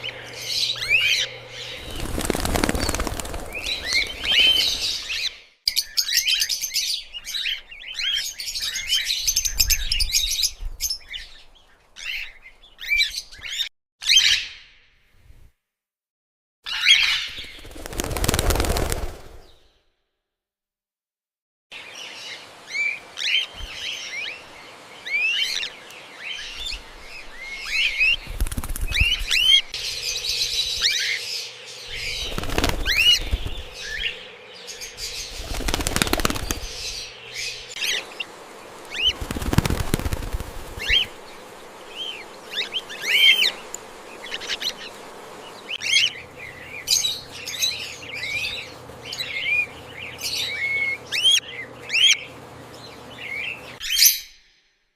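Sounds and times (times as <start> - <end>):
cockatiels chirping: 0.0 - 11.4, 26.3 - 38.3, 38.9 - 40.1, 40.7 - 45.0, 45.6 - 52.3
wings flapping: 0.4 - 5.4, 17.0 - 19.6, 26.6 - 47.6.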